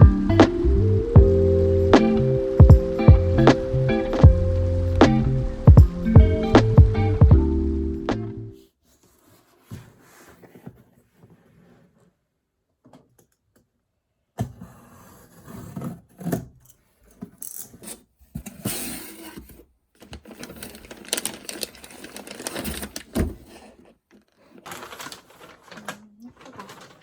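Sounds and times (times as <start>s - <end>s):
close clicking and rustling: 19.4s - 27.0s.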